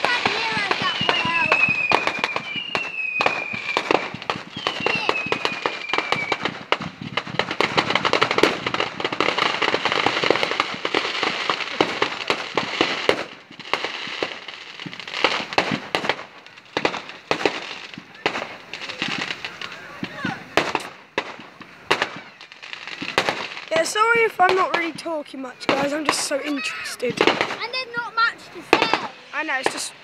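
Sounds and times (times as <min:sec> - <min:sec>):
falling firework whistles: 0:00.0 - 0:24.2
fireworks crackling and banging: 0:00.0 - 0:30.0.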